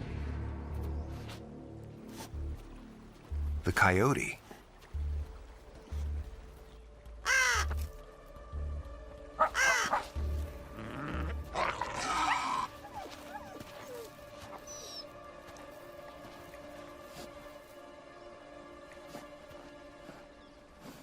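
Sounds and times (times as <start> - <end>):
harsh caw-like animal calls: 7.2 - 7.8, 9.4 - 10.1.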